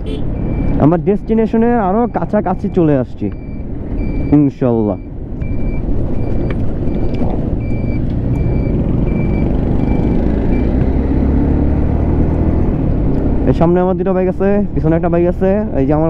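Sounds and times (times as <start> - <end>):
motorcycle engine and wind: 5.1 - 13.5.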